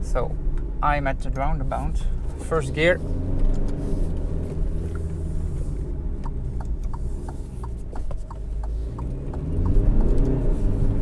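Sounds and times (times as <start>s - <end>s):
car engine drone: 0.0s - 11.0s
road noise: 0.0s - 11.0s
light ticks: 6.1s - 10.4s.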